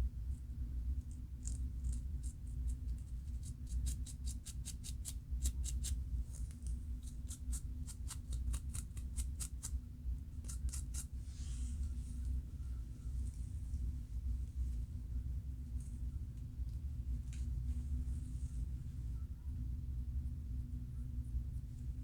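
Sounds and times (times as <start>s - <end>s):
low steady hum: 0.0s - 22.0s
fingers scratching scalp: 7.0s - 9.7s, 10.4s - 11.1s.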